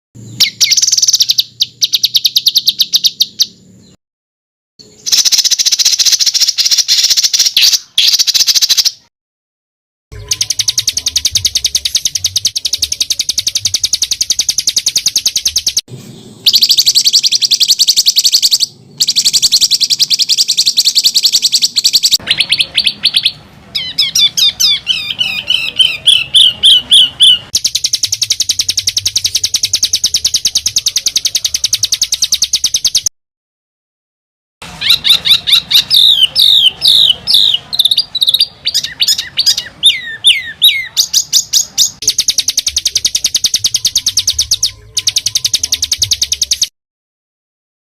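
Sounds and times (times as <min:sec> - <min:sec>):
bird down-slurred whistled notes: 0:00.2 - 0:03.5, 0:10.2 - 0:33.1, 0:34.8 - 0:46.7
bird harsh rapid trilling: 0:00.3 - 0:03.6, 0:04.9 - 0:09.1, 0:10.2 - 0:33.1, 0:34.6 - 0:46.7.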